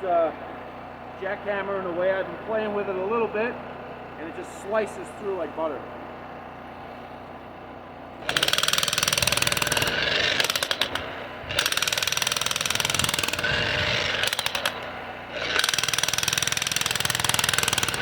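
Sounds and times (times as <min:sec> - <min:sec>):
demolition hammer chiselling soil: 0:08.1 - 0:18.0.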